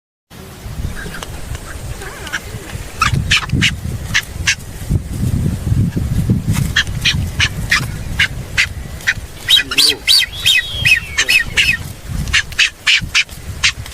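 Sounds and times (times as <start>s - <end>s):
bird short sharp calls: 8.6s - 13.8s.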